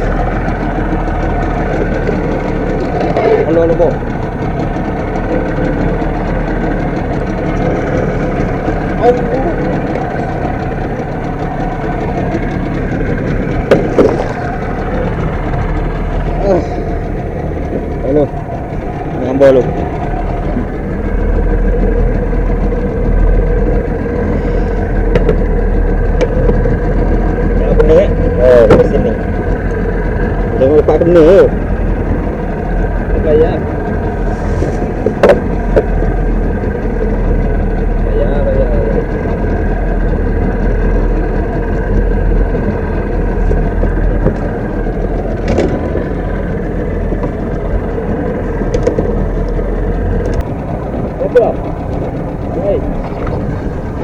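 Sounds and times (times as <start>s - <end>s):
boat motor running: 0.0s - 54.0s
water wash: 0.0s - 54.0s.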